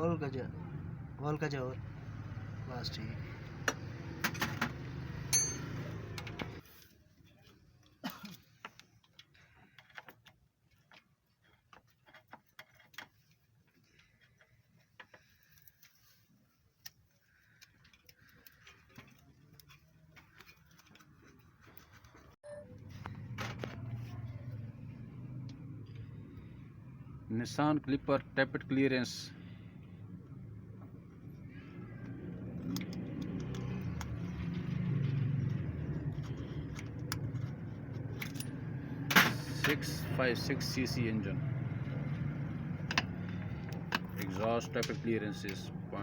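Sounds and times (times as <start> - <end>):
vehicle engine rumble: 21.0 - 46.0.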